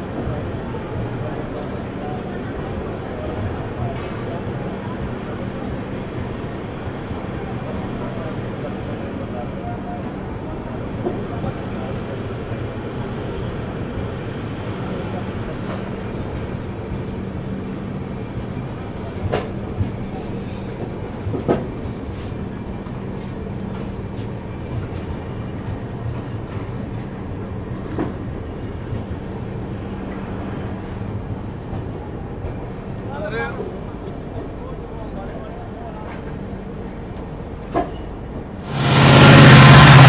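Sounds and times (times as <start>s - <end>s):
train coaches rumbling on rails: 0.0s - 40.0s.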